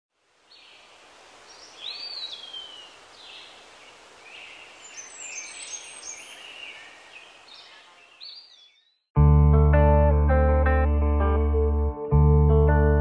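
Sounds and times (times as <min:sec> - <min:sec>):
steady outdoor hiss: 0:00.1 - 0:08.6
birds chirping: 0:00.5 - 0:09.1.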